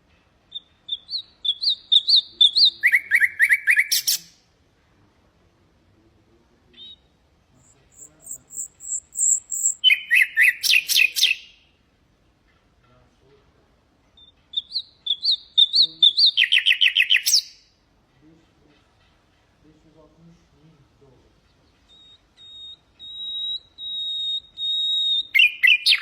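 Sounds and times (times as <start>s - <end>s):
nightingale singing trills: 0.4s - 4.5s, 6.6s - 11.8s, 14.1s - 17.9s, 21.1s - 26.0s.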